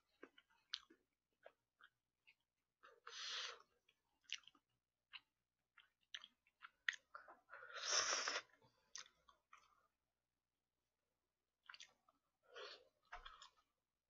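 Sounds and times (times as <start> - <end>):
chewing wet smacks and clicks: 0.2 - 2.4, 3.8 - 7.5, 8.8 - 9.8, 11.6 - 12.2.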